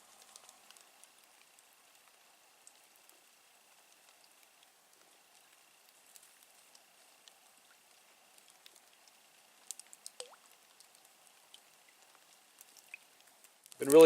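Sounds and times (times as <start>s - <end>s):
faint drips and ticks: 0.0s - 14.0s.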